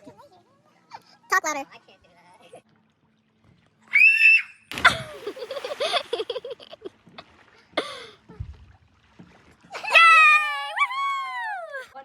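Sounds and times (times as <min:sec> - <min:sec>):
young women laughing: 0:04.8 - 0:06.9.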